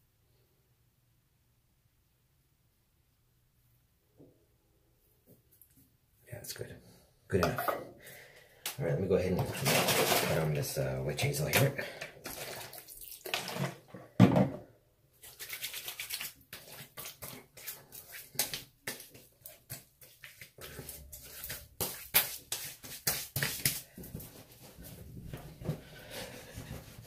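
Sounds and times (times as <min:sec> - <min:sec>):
knock: 0:14.2 - 0:14.6
hands patting face: 0:21.3 - 0:24.4.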